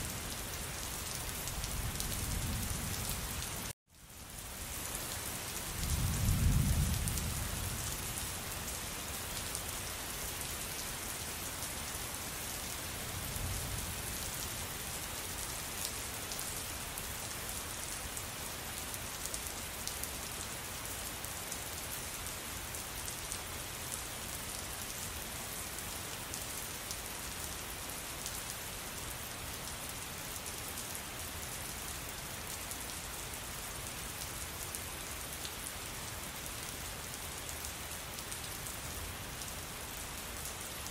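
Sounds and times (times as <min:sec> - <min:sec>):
steady rain patter: 0:00.0 - 0:40.9.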